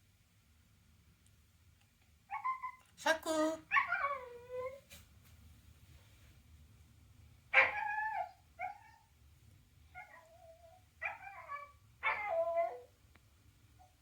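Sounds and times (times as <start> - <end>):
dog whining: 2.3 - 2.9, 3.7 - 4.8, 7.6 - 9.0, 10.0 - 12.9.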